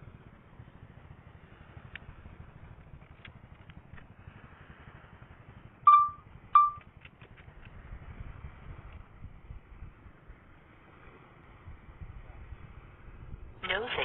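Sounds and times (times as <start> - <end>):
low steady rumble: 0.0 - 14.0
short loud warning beeps: 5.9 - 6.8.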